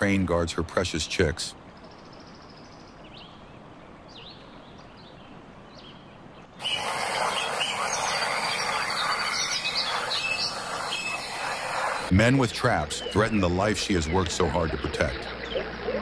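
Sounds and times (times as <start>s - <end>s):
small birds chirping: 1.1s - 16.0s.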